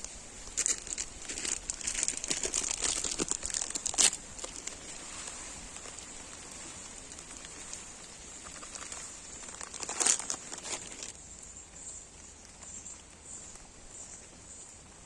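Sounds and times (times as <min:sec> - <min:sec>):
crinkling rustling handling noise: 0:00.0 - 0:11.2
burst of crackles: 0:00.4 - 0:11.2.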